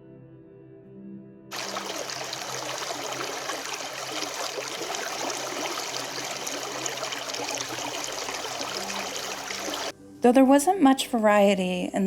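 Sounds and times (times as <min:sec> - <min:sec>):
soft ambient music: 0:00.0 - 0:12.0
creek water over rocks: 0:01.5 - 0:09.9.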